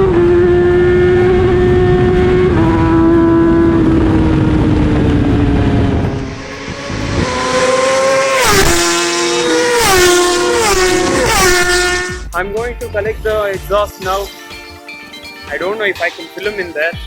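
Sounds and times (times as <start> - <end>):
motorcycle engine shifting gears: 0.0 - 12.2.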